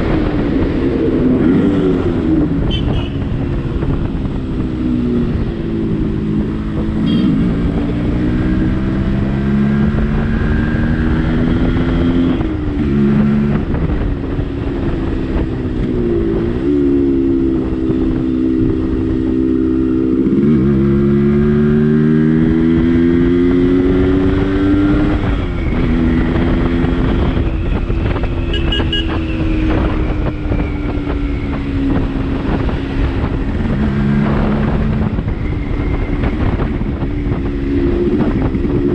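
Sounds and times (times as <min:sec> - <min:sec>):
motorcycle engine shifting gears: 0:00.0 - 0:38.9
road and wind noise: 0:00.0 - 0:38.9.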